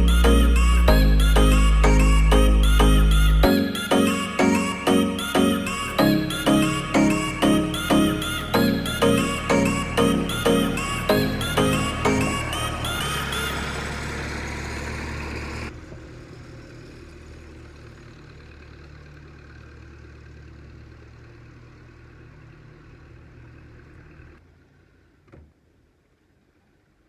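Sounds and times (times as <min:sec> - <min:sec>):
background music: 0:00.0 - 0:14.0
engine idling: 0:00.0 - 0:24.4.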